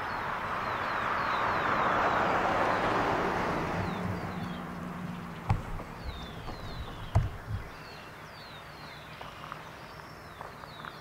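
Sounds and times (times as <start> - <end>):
faint outdoor hiss: 0.0 - 11.0
small birds whistling: 3.8 - 11.0
low thumps: 4.0 - 7.9.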